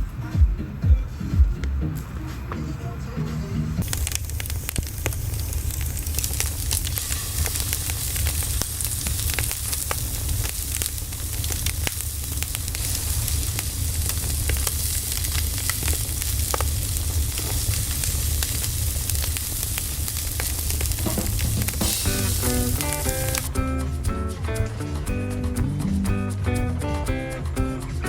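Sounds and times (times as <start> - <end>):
fire crackling and popping: 3.8 - 24.9.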